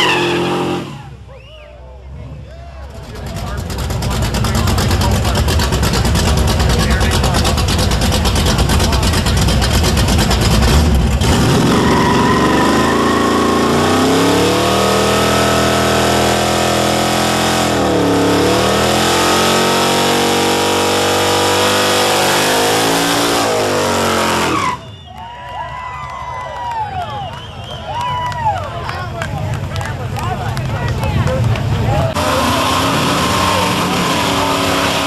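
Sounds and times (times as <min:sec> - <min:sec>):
car engine revving in a burnout: 0:00.0 - 0:01.2, 0:02.1 - 0:24.8, 0:31.0 - 0:35.0.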